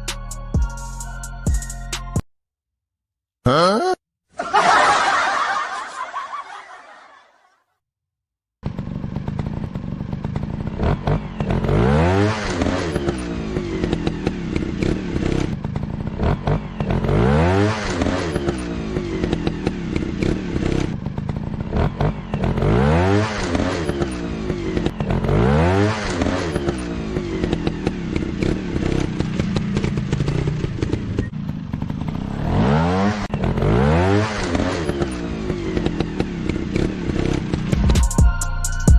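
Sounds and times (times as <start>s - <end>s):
music: 0.0s - 2.2s, 37.8s - 38.9s
dirt bike engine revving: 8.6s - 37.8s.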